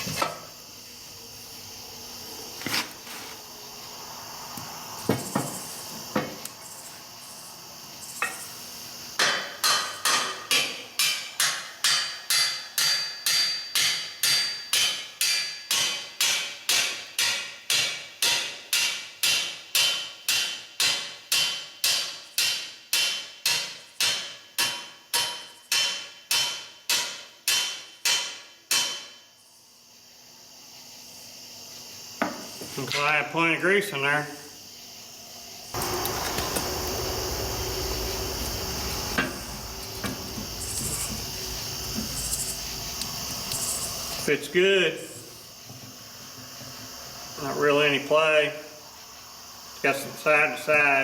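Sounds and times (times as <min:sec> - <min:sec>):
hammer striking steel: 0:09.2 - 0:29.2.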